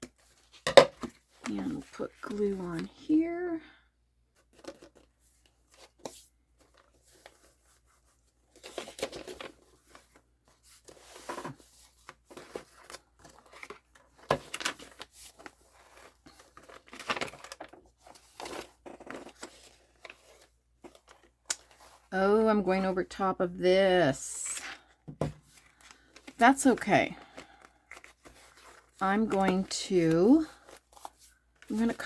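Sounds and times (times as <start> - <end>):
paper rustling and scraping: 4.4 - 22.1, 24.5 - 32.0.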